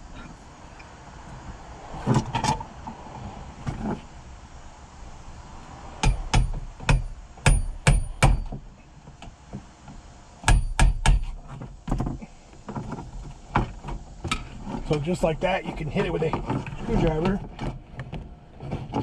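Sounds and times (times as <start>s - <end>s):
screwdriver striking metal: 6.0s - 8.5s.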